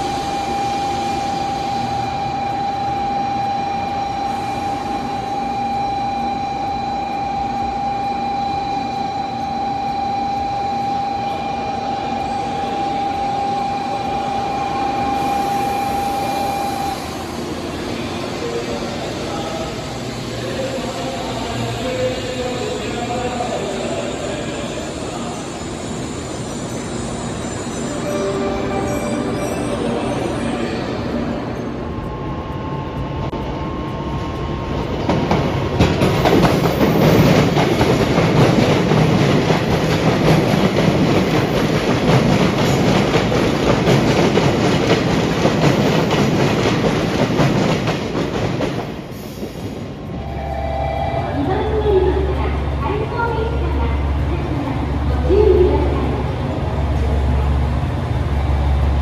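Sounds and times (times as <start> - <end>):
rail and machinery noise: 0.0 - 59.0
train wheels clicking: 0.0 - 59.0
high-pitched tone: 23.7 - 33.3, 50.2 - 57.5.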